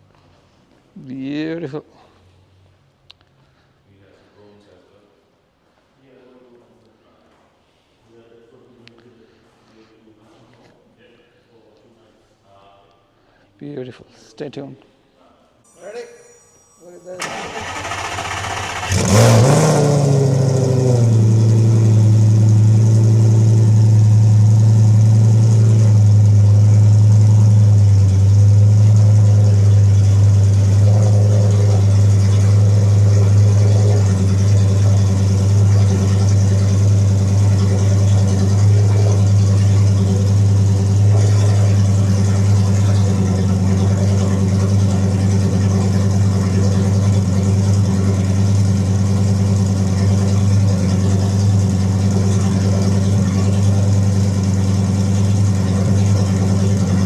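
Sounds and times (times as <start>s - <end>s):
car engine revving and idling: 16.6s - 57.0s.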